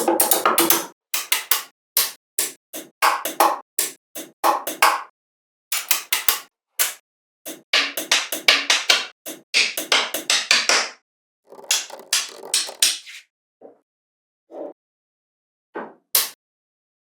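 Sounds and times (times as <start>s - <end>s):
sharp percussive hits: 11.5s - 13.0s.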